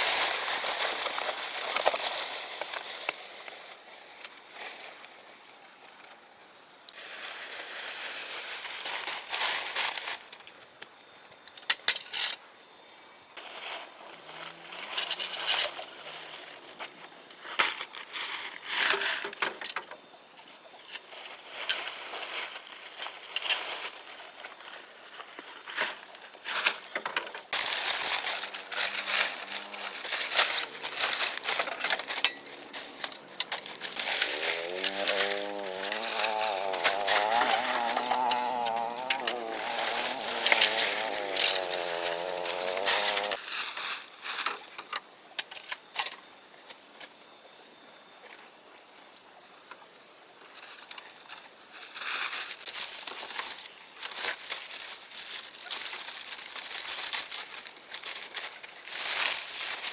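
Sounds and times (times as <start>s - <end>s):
crunching and scraping: 0.0s - 5.1s, 20.8s - 46.2s, 51.8s - 59.9s.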